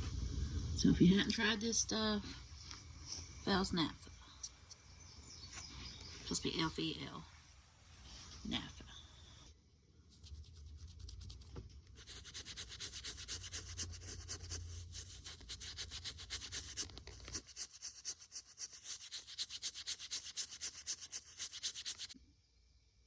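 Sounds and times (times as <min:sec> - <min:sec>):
rapid scrubbing on fabric: 0:12.0 - 0:22.2.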